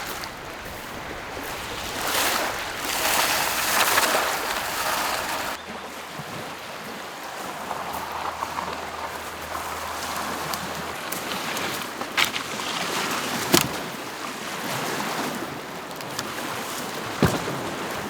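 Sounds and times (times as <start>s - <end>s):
lake waves washing onto shore: 0.0s - 18.0s.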